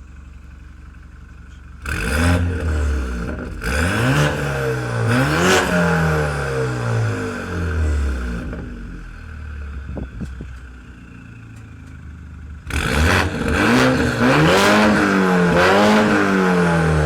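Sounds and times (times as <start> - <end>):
car engine idling: 0.0 - 3.9, 5.8 - 12.7
car engine revving: 1.8 - 9.2, 12.6 - 17.0.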